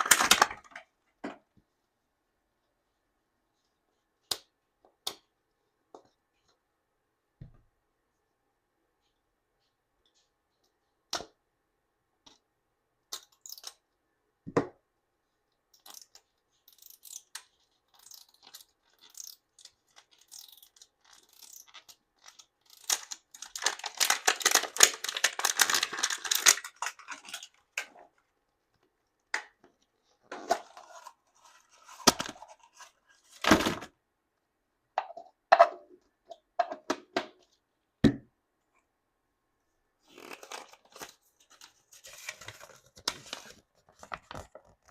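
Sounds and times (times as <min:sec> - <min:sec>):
plastic wrapping crinkling and tearing: 0:18.2 - 0:27.8.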